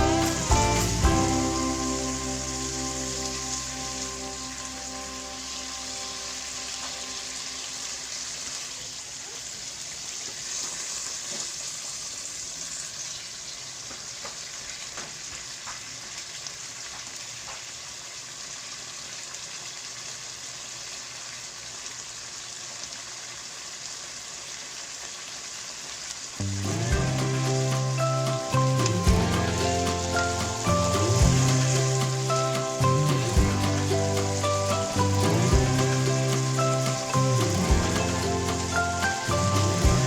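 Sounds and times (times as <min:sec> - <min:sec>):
background music: 0:00.0 - 0:07.9, 0:26.4 - 0:40.0
livers sizzling in hot oil: 0:00.0 - 0:40.0.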